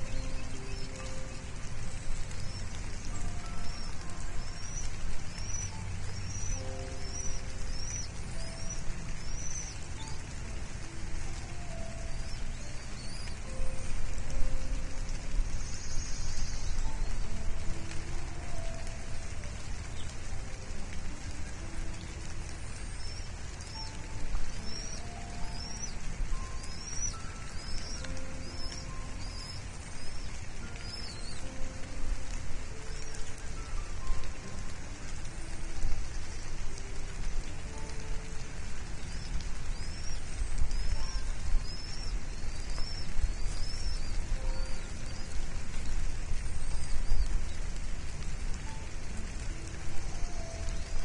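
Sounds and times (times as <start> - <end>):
bird chirping: 0.0 - 17.9, 21.9 - 31.9, 37.5 - 47.6
rain hissing on microphone: 0.0 - 51.0
faint bird chirps: 22.8 - 31.9, 39.0 - 47.6.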